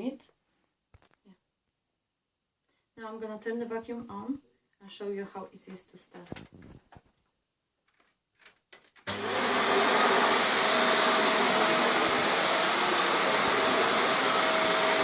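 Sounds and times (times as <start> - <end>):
vacuum cleaner motor running: 9.1 - 15.0.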